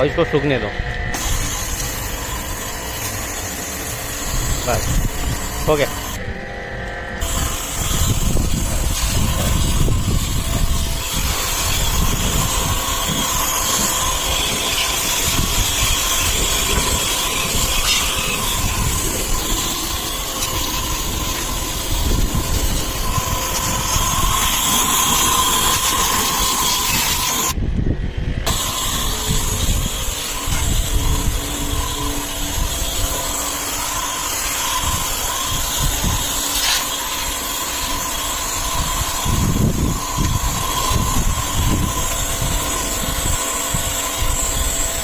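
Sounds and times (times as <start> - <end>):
pressure washer motor whine: 0.0 - 45.0
pressure washer water spray hiss: 1.1 - 6.2, 7.2 - 27.6, 28.5 - 45.0.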